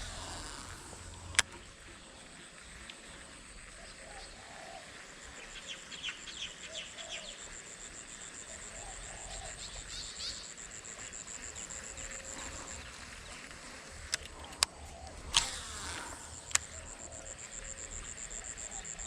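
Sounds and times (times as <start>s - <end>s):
high fast-pulsing insect trill: 0.0s - 1.4s.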